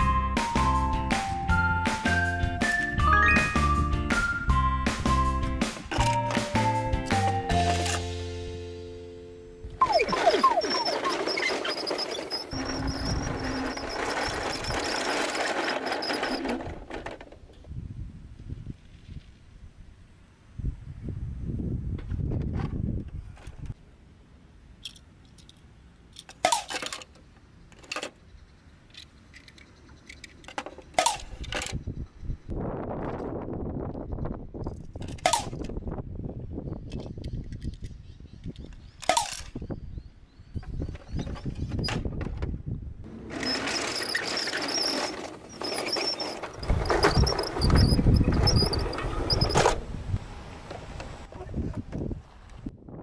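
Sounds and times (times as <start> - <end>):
plastic wheels scraping and rolling: 7.2 - 8.1, 9.8 - 17.8, 43.0 - 49.9
toy truck wheels squeaking: 9.8 - 17.2, 43.1 - 49.7
toy cars clicking on plastic: 10.5 - 17.4.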